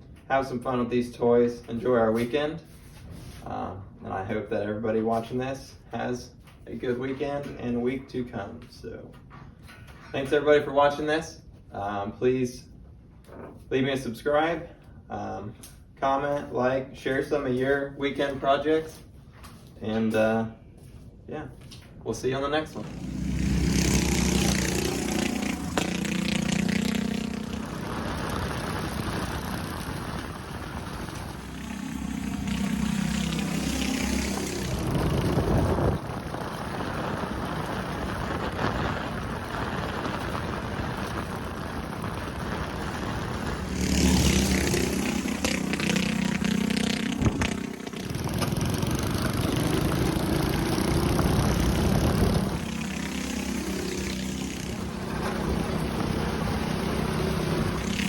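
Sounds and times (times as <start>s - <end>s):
steady rushing noise: 22.3s - 58.0s
small engines revving: 22.8s - 58.0s.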